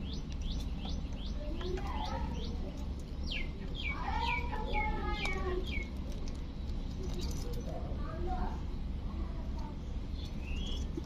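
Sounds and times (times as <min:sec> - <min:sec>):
bird chirping: 0:00.0 - 0:06.1, 0:10.1 - 0:11.0.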